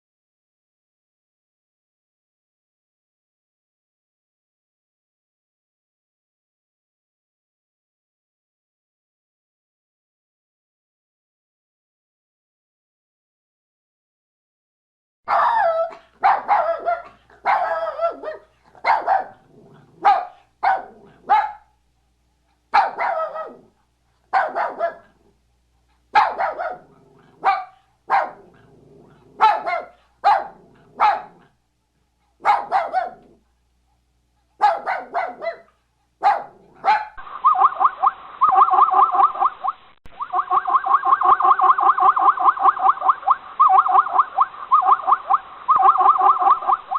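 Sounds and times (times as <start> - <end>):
dog barking: 15.3 - 21.8, 22.7 - 25.3, 26.1 - 28.7, 29.3 - 31.6, 32.4 - 33.4, 34.6 - 37.2.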